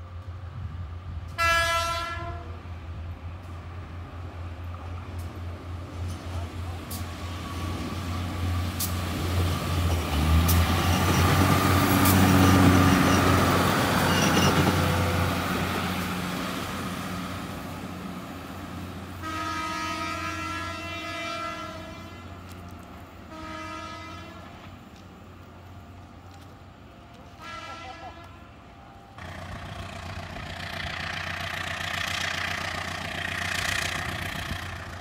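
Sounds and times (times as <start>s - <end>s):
train passing rumble: 0.0s - 35.0s
train horn blasts: 1.3s - 2.6s, 19.2s - 22.6s, 23.3s - 24.8s, 27.2s - 28.9s.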